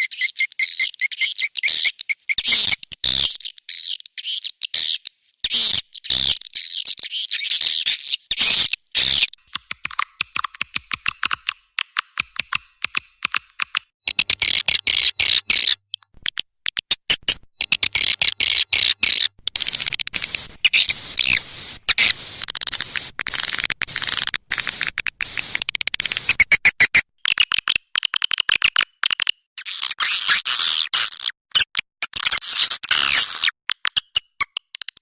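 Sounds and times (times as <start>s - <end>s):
rapid repeated clicks: 9.0s - 29.4s
swiftlets twittering: 19.0s - 26.6s.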